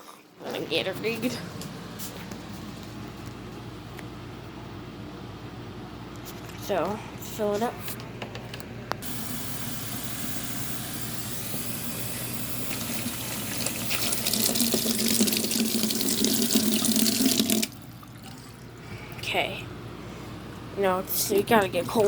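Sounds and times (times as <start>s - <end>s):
tap water filling a spray bottle: 9.0s - 18.6s.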